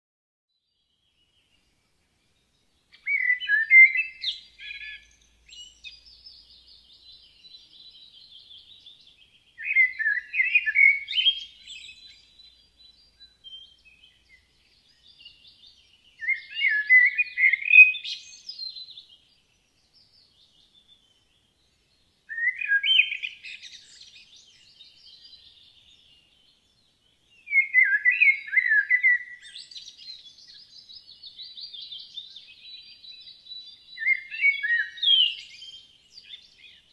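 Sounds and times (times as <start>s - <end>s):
songbird singing chirpy notes: 0.5s - 36.9s
high bird twittering: 2.9s - 19.1s, 22.3s - 25.7s, 27.5s - 33.0s, 34.0s - 36.9s.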